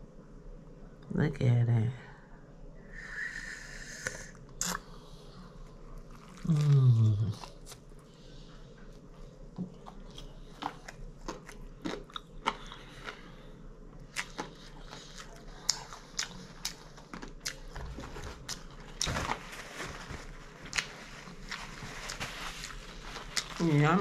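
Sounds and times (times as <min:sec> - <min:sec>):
person chewing crunchy food: 0:04.6 - 0:08.0, 0:08.9 - 0:23.6.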